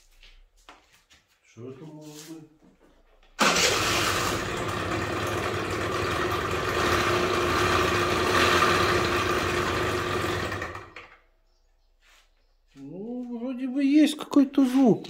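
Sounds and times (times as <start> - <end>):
scooter two-stroke engine running: 3.4 - 11.2.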